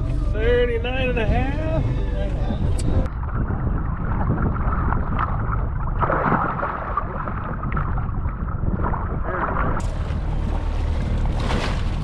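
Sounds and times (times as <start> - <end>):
wind rumbling on microphone: 0.0 - 12.0
water lapping against boat hull: 2.6 - 12.0.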